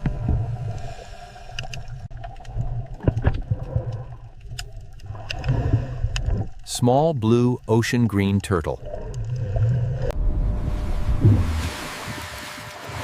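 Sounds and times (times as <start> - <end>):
low underwater rumble: 8.8 - 12.6.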